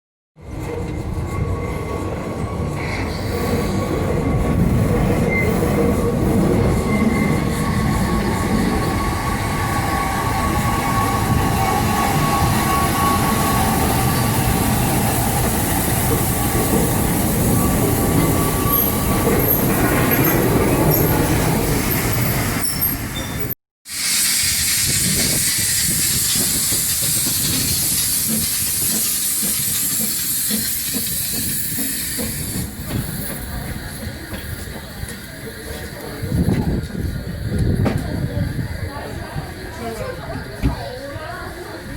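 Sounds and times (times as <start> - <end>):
train wheels rumbling on rail: 0.4 - 41.9
wheel squeal: 0.6 - 23.6
steam hiss: 23.9 - 36.2.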